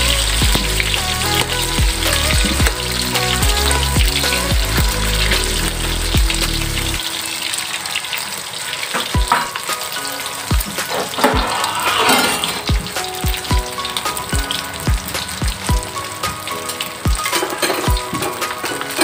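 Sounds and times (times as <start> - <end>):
music with thudding bass beat: 0.0 - 7.0, 14.4 - 15.9
food sizzling in oil: 0.0 - 19.0.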